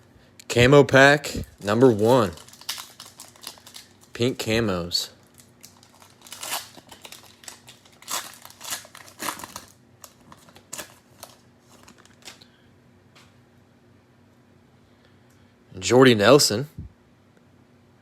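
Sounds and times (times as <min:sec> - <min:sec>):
plastic wrapper crinkling: 0:01.4 - 0:04.3, 0:05.2 - 0:12.4.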